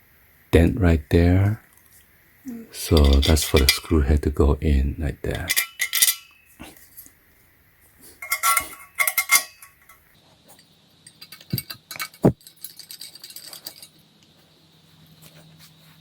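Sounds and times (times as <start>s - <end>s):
metal screws clinking: 2.8s - 4.0s, 5.4s - 6.5s, 8.2s - 10.0s, 11.0s - 14.0s.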